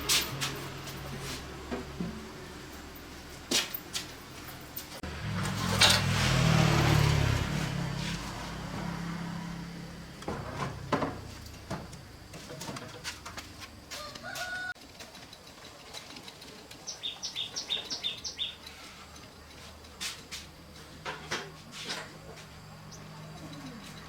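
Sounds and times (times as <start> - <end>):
bird high chirps: 16.8 - 18.7.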